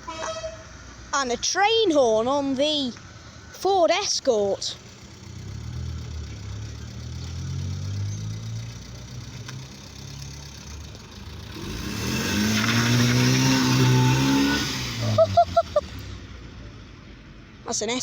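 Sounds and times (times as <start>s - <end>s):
car engine passing by: 5.2s - 16.6s.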